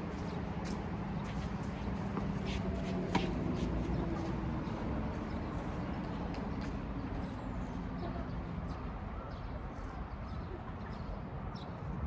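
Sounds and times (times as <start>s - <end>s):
tennis ball impact: 3.1s - 3.6s.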